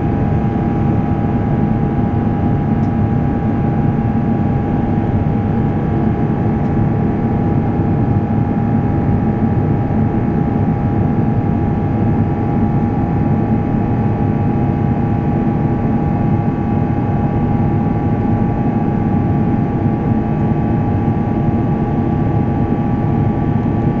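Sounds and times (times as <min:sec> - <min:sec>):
aircraft cabin drone with whine: 0:00.0 - 0:24.0.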